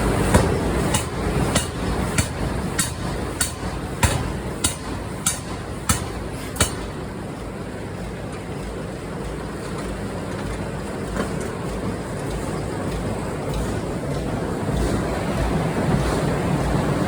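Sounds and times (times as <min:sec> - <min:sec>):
machinery hum: 0:00.0 - 0:17.0
forging hammer striking steel: 0:00.2 - 0:07.2.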